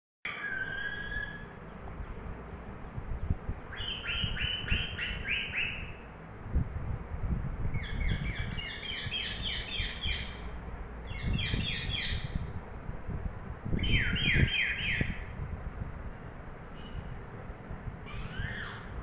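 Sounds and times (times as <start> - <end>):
parrot chirping: 0.3 - 1.5, 3.7 - 6.0, 7.8 - 10.4, 18.0 - 19.0.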